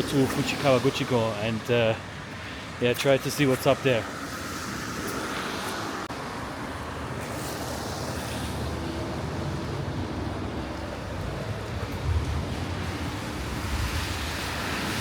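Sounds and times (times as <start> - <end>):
traffic hiss on wet road: 0.0 - 15.0.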